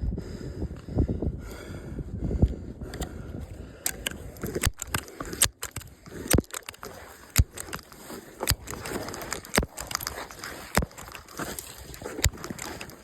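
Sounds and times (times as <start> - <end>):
crunching and scraping: 3.4 - 13.0
sharp clicks: 3.8 - 13.0.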